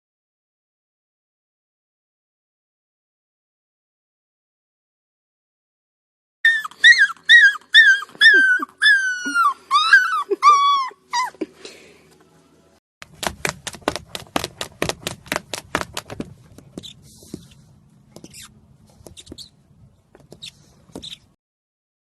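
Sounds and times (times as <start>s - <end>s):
puppy whimpering: 6.5s - 11.5s.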